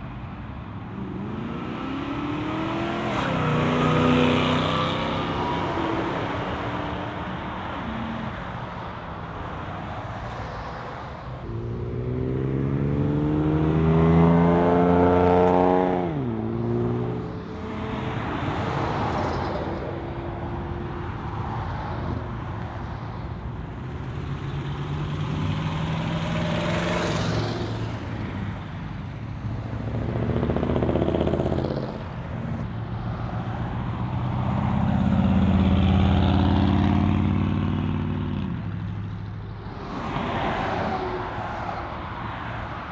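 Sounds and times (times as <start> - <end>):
cars driving past: 0.8 - 42.9
muscle car engines revving: 29.4 - 32.6.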